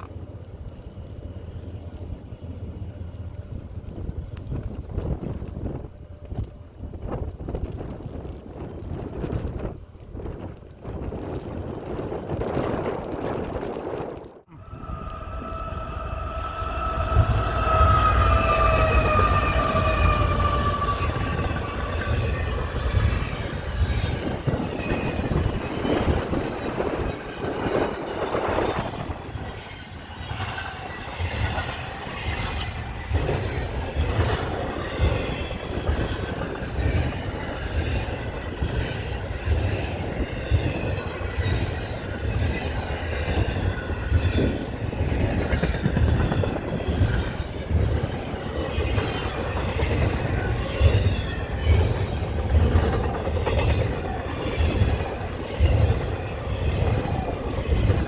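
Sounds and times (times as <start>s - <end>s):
train rumbling past: 0.0s - 58.0s
high wavering wheel squeal: 14.5s - 25.5s.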